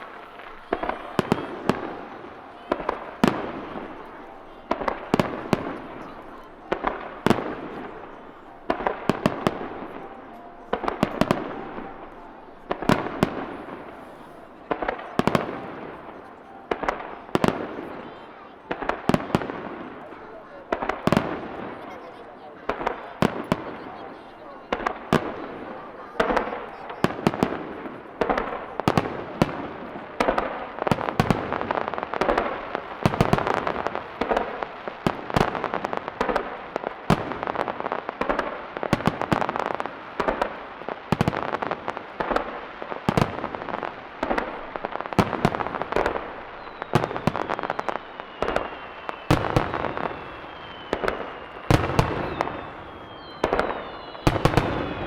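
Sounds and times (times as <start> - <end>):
firework crackle: 0.0 - 55.0
firework shells bursting: 43.1 - 55.0
falling firework whistles: 46.5 - 55.0.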